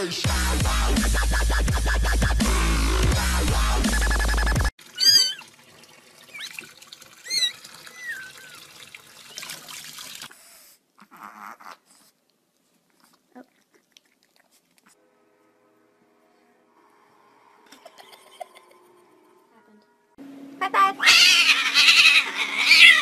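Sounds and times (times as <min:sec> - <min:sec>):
electronic music: 0:00.0 - 0:04.7
cat meowing: 0:05.0 - 0:05.5, 0:21.0 - 0:23.0.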